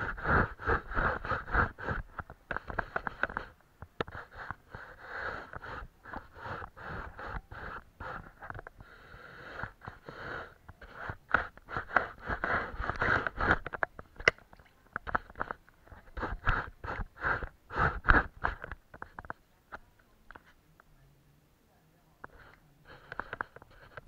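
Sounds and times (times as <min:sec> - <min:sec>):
brush stroking on paper: 0:00.0 - 0:08.5, 0:22.3 - 0:24.0.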